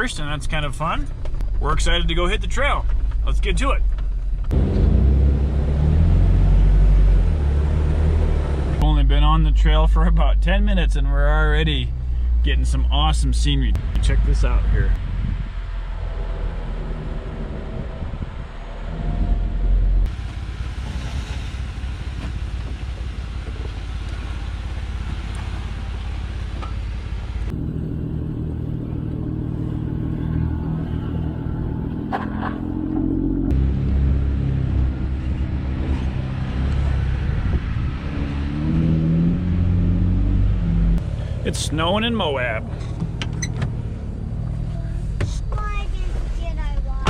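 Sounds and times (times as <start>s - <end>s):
jeep engine droning: 0.0s - 47.0s.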